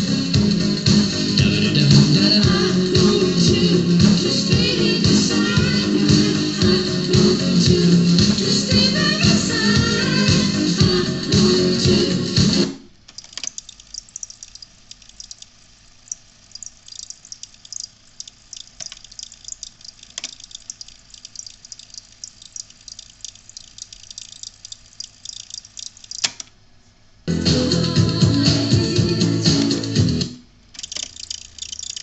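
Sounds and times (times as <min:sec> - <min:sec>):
radio speaker crackling and clicking: 0:13.0 - 0:26.6, 0:30.7 - 0:32.0.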